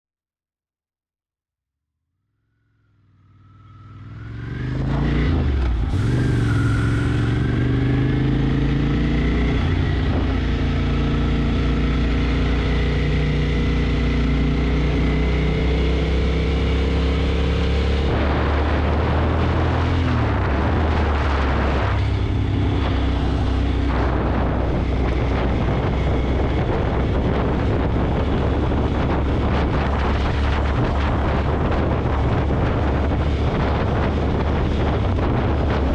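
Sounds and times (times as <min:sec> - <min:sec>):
rushing noise: 0:17.8 - 0:35.9
motorcycle engine running: 0:20.3 - 0:35.9.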